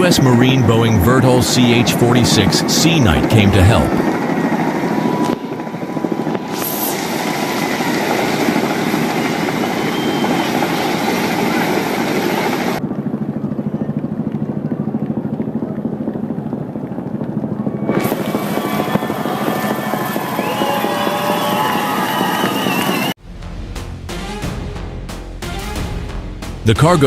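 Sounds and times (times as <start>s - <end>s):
helicopter rotor and engine noise: 0.0s - 23.1s.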